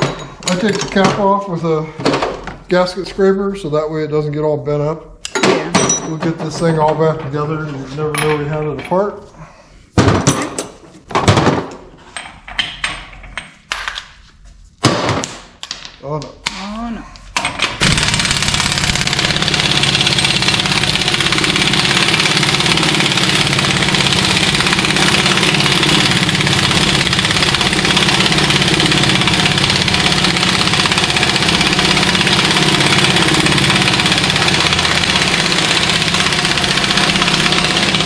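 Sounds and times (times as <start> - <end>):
air compressor running: 17.6 - 38.0.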